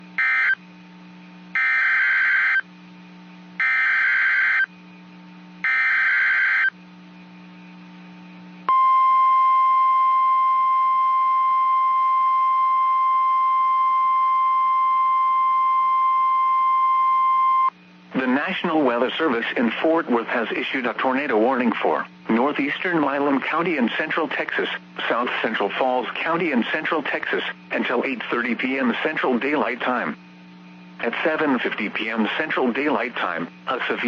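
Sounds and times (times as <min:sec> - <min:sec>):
steady alarm tone: 0:00.2 - 0:00.6, 0:01.5 - 0:02.7, 0:03.6 - 0:04.7, 0:05.6 - 0:06.8.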